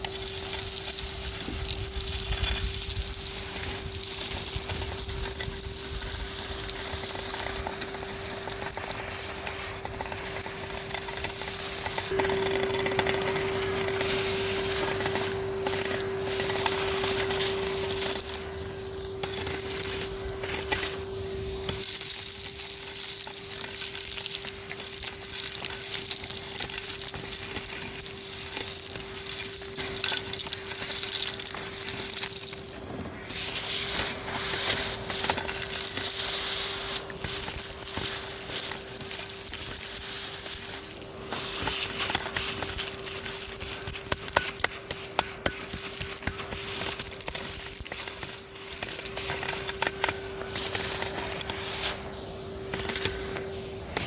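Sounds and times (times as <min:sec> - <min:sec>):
vacuum cleaner motor hum: 0:00.0 - 0:22.1, 0:46.4 - 0:54.0
debris rattling up hose: 0:00.0 - 0:54.0.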